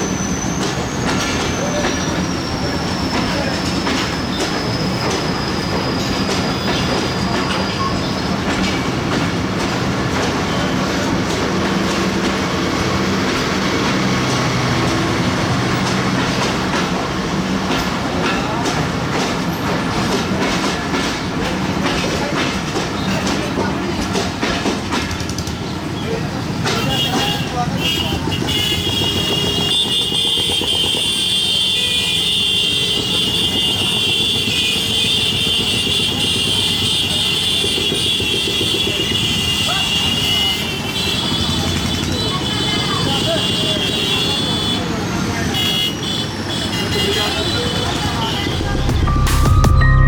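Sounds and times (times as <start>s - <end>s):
high wheel squeal: 0.0s - 9.2s, 28.4s - 48.7s
train wheels clattering over rails: 0.0s - 48.7s.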